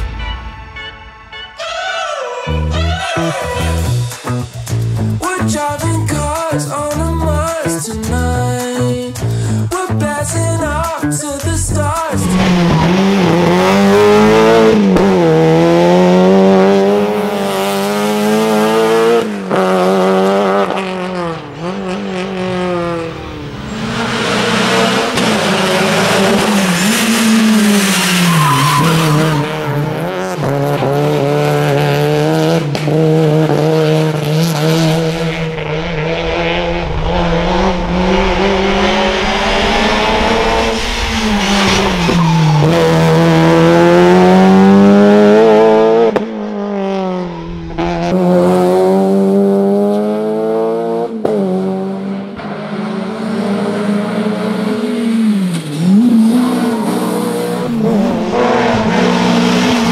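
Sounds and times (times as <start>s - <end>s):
race car engine revving: 2.5s - 59.9s.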